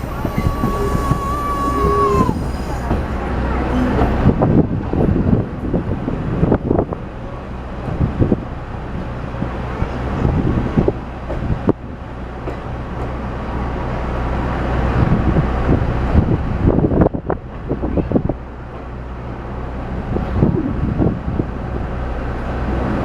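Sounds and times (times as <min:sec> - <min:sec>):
train running noise: 0:00.0 - 0:23.0.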